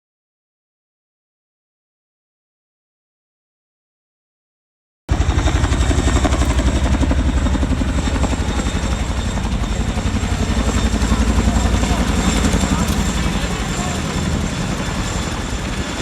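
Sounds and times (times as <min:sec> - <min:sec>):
helicopter rotor beating: 0:05.1 - 0:16.0.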